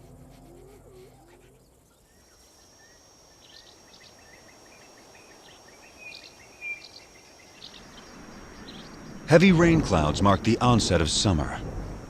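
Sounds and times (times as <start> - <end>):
high insect drone: 0.0 - 12.0
bird chirps: 0.4 - 9.3.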